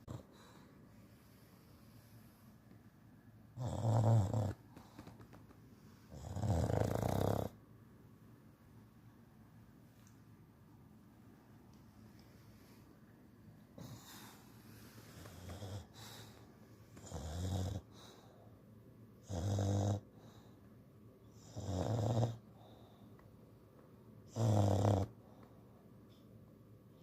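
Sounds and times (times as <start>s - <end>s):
dog snoring: 0.0s - 0.6s, 3.6s - 5.2s, 6.1s - 7.6s, 15.1s - 16.4s, 17.0s - 18.3s, 19.2s - 20.5s, 21.3s - 22.4s, 24.3s - 25.2s.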